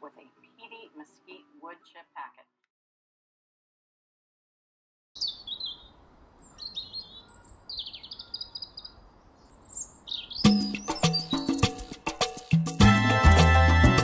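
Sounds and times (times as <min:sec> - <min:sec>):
songbirds chirping: 0:05.2 - 0:12.1
upbeat salsa music: 0:10.5 - 0:14.0.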